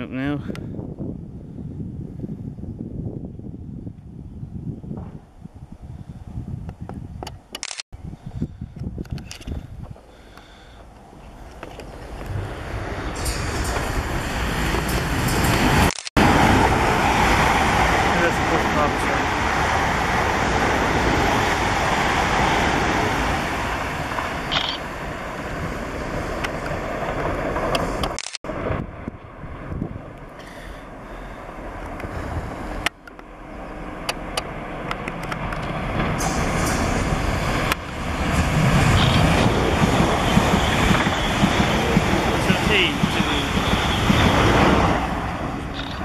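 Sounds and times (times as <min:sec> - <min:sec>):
train passing close by: 0:10.7 - 0:46.0.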